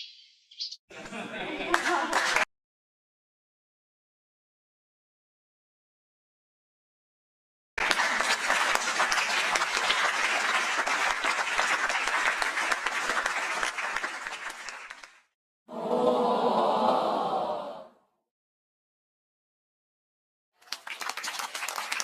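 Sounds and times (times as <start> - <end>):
crowd applause: 0.9 - 2.5, 7.8 - 17.7, 20.6 - 22.0
many voices together: 15.7 - 18.0.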